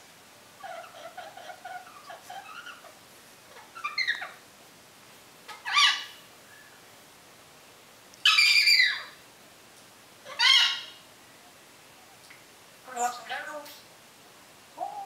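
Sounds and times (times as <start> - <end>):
parrot whistling squawks: 8.2 - 9.2, 10.3 - 11.0.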